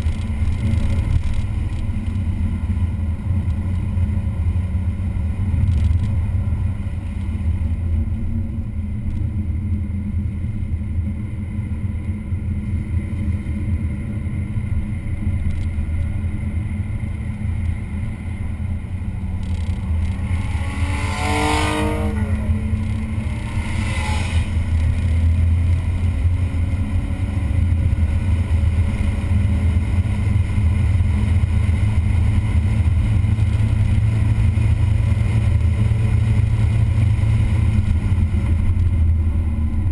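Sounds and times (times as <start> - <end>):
car engine and road drone: 0.0 - 39.9
high-pitched whine sweeping down: 19.4 - 27.1.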